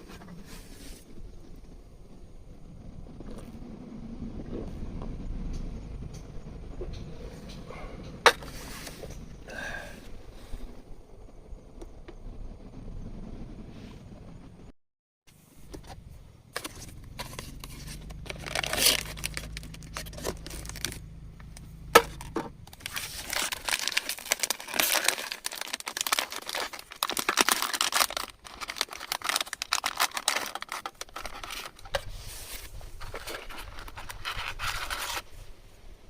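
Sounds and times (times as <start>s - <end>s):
low steady hum: 0.0s - 14.7s, 15.4s - 36.0s
packaging crinkling and rustling: 16.6s - 35.3s.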